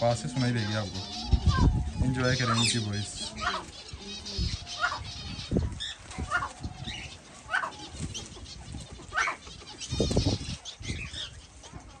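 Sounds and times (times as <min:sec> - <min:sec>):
wings flapping: 0:04.9 - 0:10.6.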